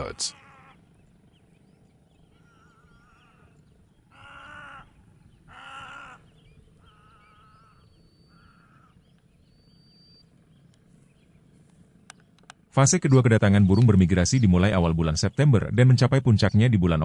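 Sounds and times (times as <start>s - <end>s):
wavering animal calls: 0.0s - 11.1s.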